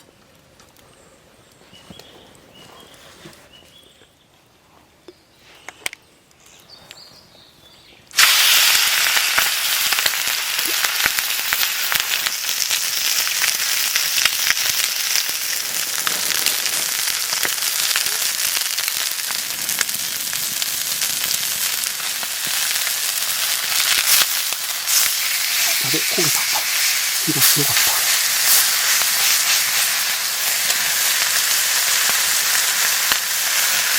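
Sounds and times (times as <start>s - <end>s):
food sizzling in hot pan: 8.2s - 33.9s.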